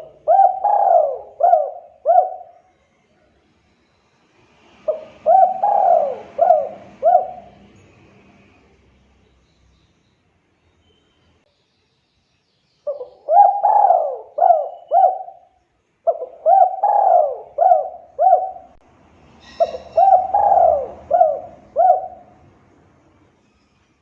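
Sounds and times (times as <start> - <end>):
dove cooing: 0.0 - 2.7, 4.9 - 7.8, 12.9 - 18.8, 19.5 - 22.4
high bird chirp: 9.2 - 18.4, 19.4 - 21.0.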